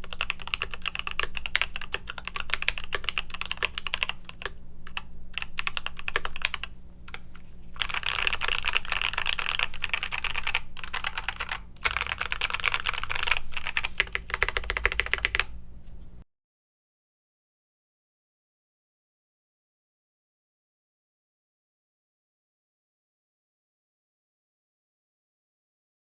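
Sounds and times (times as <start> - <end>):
typing on mechanical keyboard: 0.0 - 7.2, 7.8 - 15.5.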